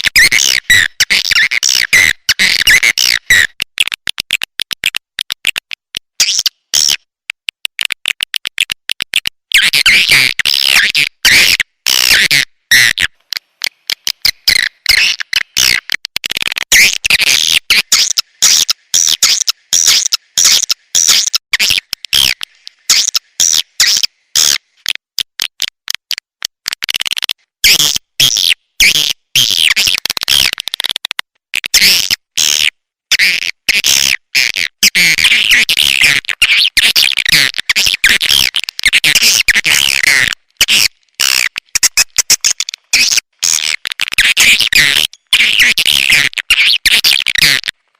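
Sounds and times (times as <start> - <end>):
dry clicks: 3.4 - 9.4, 13.2 - 14.4, 24.8 - 27.5, 37.1 - 45.4
buzzy bird chirping: 16.8 - 24.6.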